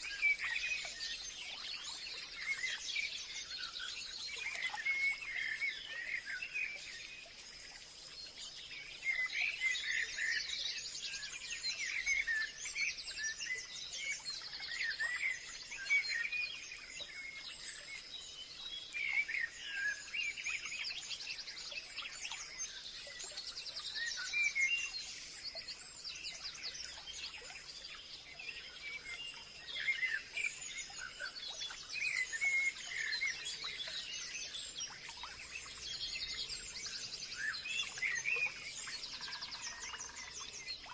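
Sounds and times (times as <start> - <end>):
faint high-pitched hiss: 0.0 - 40.9
birds chirping and trilling: 21.5 - 40.9.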